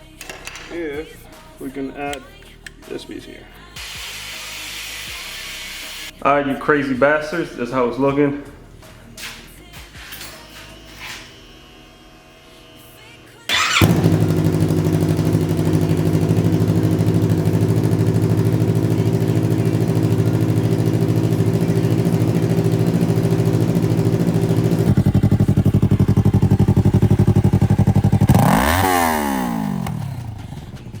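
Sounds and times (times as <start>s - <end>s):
motorcycle engine revving: 13.5s - 31.0s
motorcycle engine starting and idling: 13.5s - 31.0s.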